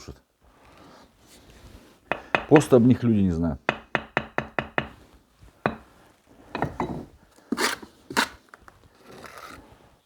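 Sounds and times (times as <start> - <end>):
trowel tapping on brick: 3.7 - 5.0, 5.7 - 5.9
trowel scraping brick and mortar: 6.6 - 8.4.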